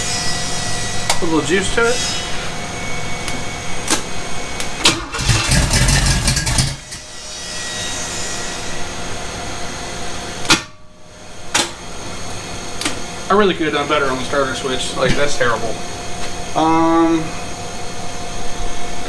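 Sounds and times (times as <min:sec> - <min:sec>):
engine cranking and starting: 0:04.8 - 0:07.0.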